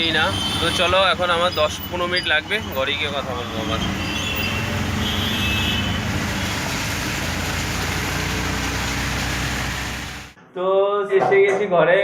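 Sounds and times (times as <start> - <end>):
auto-rickshaw engine: 0.0 - 10.4
heavy rain: 3.5 - 10.4.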